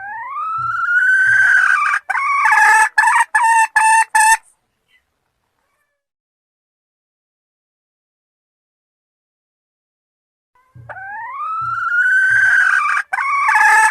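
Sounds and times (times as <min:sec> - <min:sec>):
rooster crowing: 0:00.0 - 0:03.0, 0:10.7 - 0:13.9.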